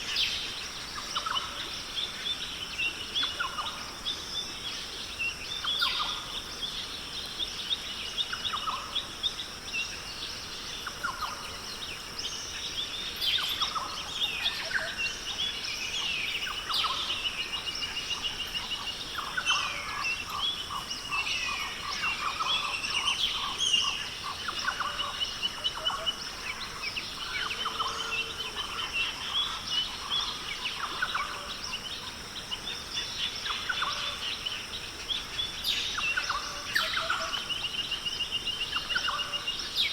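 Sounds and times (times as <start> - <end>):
chorus of birds calling: 10.7 - 39.9.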